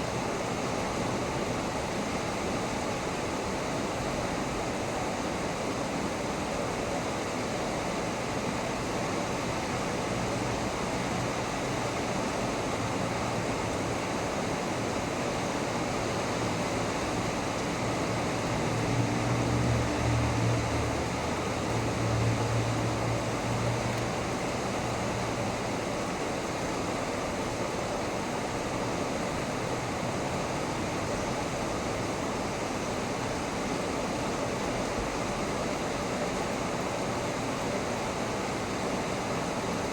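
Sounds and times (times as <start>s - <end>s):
heavy rain falling: 8.1s - 39.9s.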